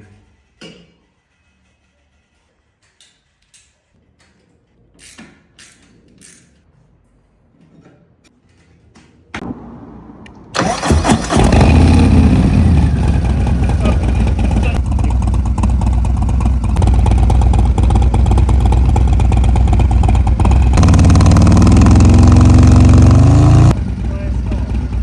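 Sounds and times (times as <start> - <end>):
motorcycle starter cranking: 10.6 - 15.3
motorcycle engine running loudly: 10.6 - 25.0.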